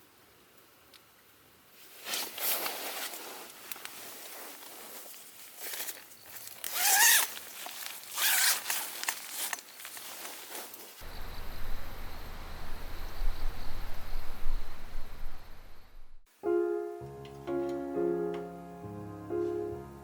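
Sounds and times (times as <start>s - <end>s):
zipper pulled: 6.7s - 7.4s, 8.1s - 8.9s
low rumble with hiss: 11.0s - 16.2s.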